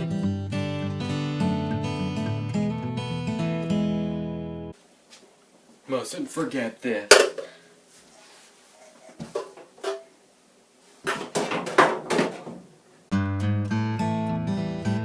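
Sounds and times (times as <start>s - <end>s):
acoustic guitar music: 0.0s - 4.8s, 13.1s - 15.0s
dryer parts clattering: 11.0s - 12.7s.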